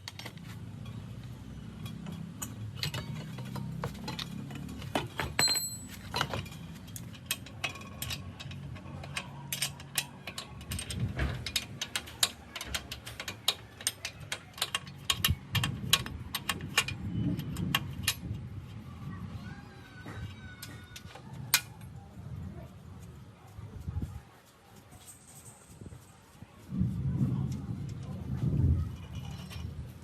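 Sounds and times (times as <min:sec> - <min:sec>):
metal tools and parts clinking: 0:00.0 - 0:18.4, 0:25.0 - 0:26.1, 0:28.8 - 0:30.0.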